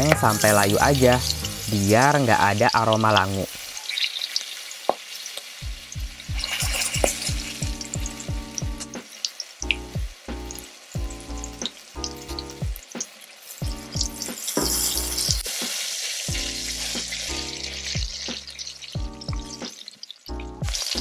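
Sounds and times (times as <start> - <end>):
background music with plucked bass: 0.0 - 3.4, 5.6 - 9.0, 9.6 - 12.8, 13.6 - 15.4, 16.3 - 19.7, 20.3 - 21.0
vegetables sizzling in hot oil: 0.0 - 21.0
spatula stirring in wok: 6.2 - 7.9.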